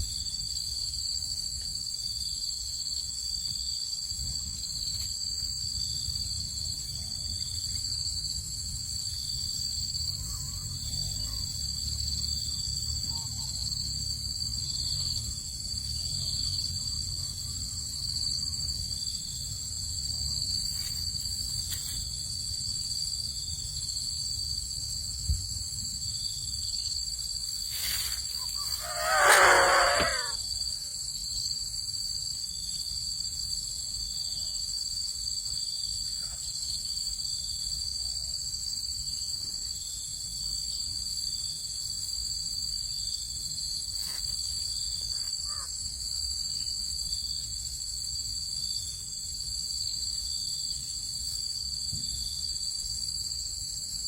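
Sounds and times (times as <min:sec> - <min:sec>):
crickets trilling: 0:00.0 - 0:54.0
animal call: 0:28.3 - 0:30.4.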